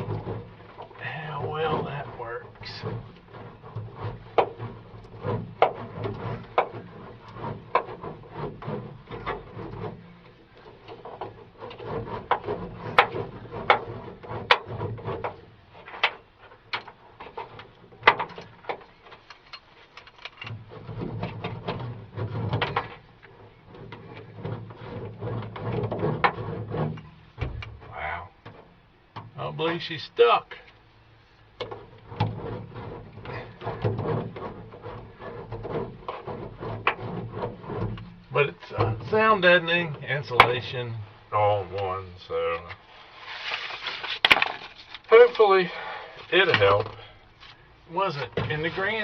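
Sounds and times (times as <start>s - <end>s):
clicks and knocks: 0.0s - 29.4s, 31.6s - 39.1s
hand roller rolling rumble: 0.0s - 49.0s.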